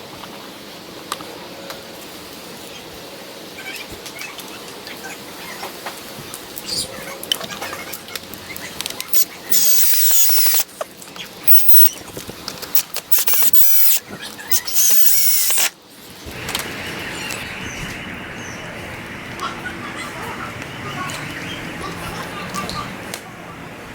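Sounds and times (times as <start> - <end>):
power drill squeaky whine: 9.1 - 10.7, 11.5 - 12.0, 12.7 - 15.7.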